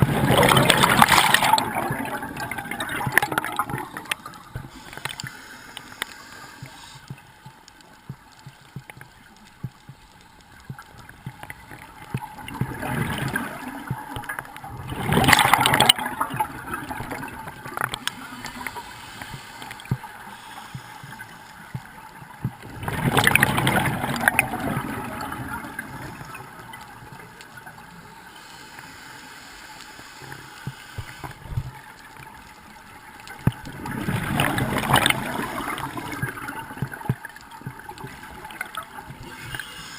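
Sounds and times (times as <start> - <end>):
bubbles gurgling underwater: 0.0 - 5.3, 10.6 - 18.7, 21.0 - 27.2, 31.4 - 39.6
faint crackling: 0.0 - 39.9.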